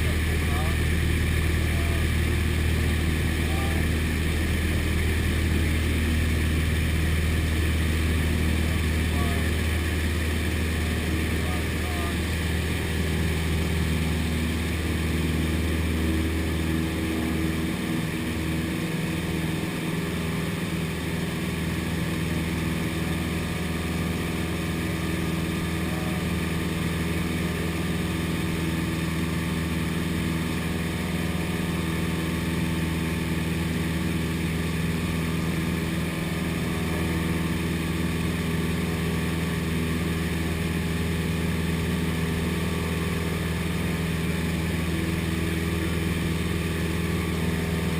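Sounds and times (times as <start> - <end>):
propeller plane engine droning: 0.0 - 47.9.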